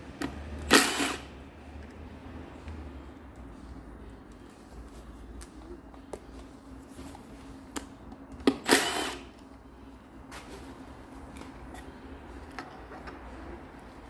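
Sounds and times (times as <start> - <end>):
power tool burst: 0.7 - 1.3, 8.6 - 9.3.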